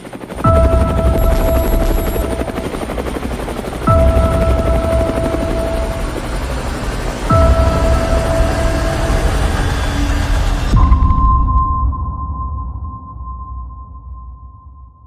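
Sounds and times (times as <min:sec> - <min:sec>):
helicopter rotor chopping: 0:00.0 - 0:10.7.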